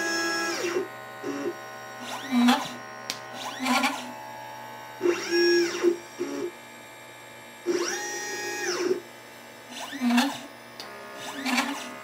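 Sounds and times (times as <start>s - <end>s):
stepper motors whining: 0.0s - 4.4s, 5.0s - 6.6s, 7.7s - 9.0s, 9.7s - 12.0s.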